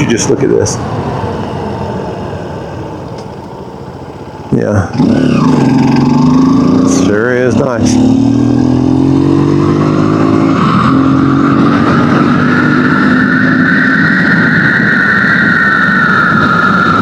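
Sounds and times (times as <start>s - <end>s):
dirt bike engine running: 5.0s - 10.5s.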